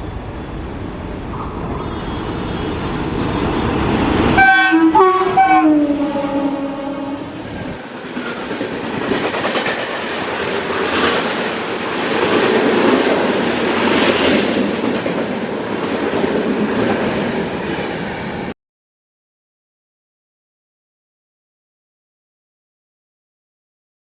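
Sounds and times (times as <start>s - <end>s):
train rushing past: 0.0s - 18.5s.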